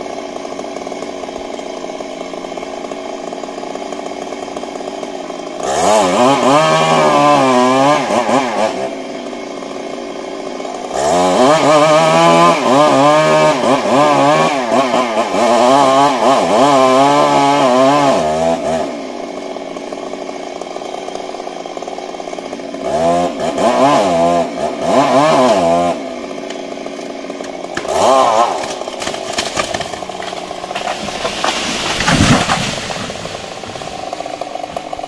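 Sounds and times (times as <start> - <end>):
chainsaw revving and idling: 0.0 - 35.0
clattering burst with low thump: 29.0 - 34.1.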